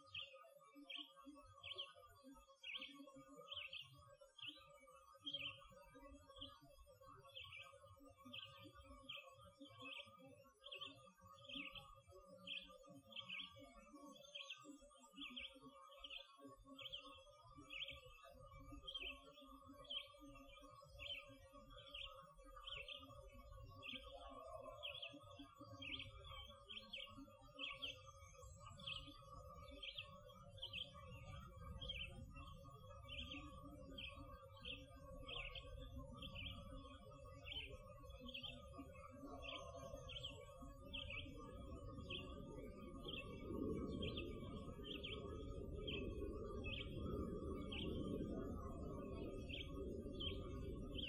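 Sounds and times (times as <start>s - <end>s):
songbird chirping: 0.0s - 51.0s
faint steady hum: 28.5s - 51.0s.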